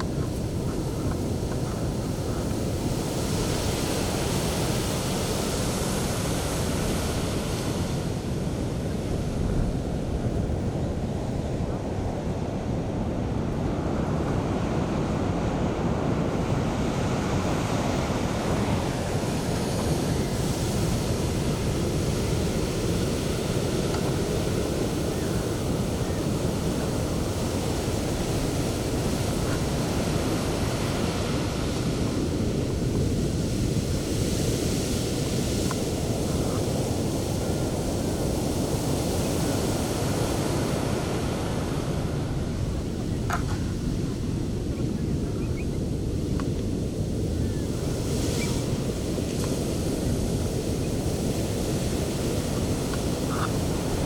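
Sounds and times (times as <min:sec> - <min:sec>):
sea waves breaking on shore: 0:00.0 - 0:54.0
wind noise on microphone: 0:00.0 - 0:54.0.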